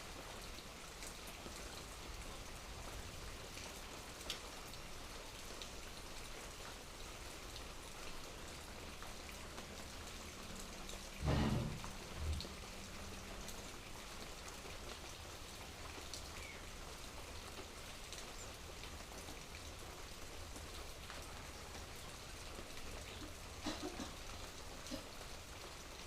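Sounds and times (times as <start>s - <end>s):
rain drops ticking: 0.0s - 26.0s
low thump: 11.2s - 12.4s.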